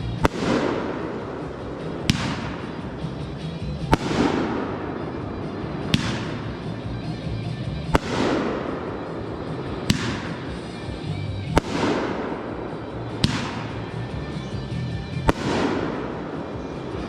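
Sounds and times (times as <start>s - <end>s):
firework bangs: 0.0s - 17.0s
firework crackle: 0.0s - 17.0s.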